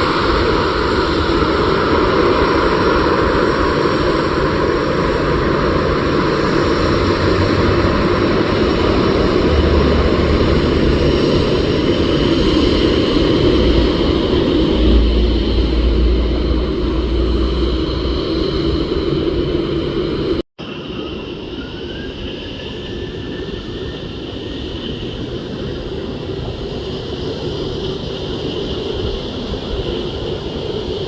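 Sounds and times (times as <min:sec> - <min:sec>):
jet engines rushing: 0:00.0 - 0:31.0
faint rising whine: 0:05.6 - 0:24.2.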